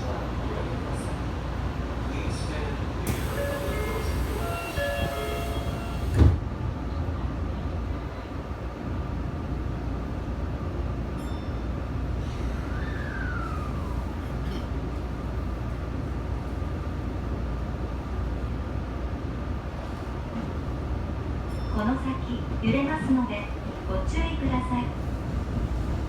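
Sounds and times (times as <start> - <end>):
train wheels and motors rumbling: 0.0 - 26.0.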